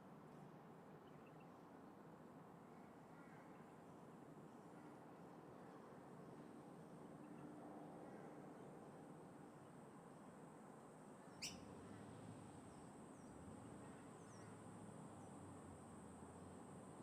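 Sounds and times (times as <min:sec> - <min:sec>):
wind: 0:00.0 - 0:17.0
bird chirping: 0:11.4 - 0:11.6.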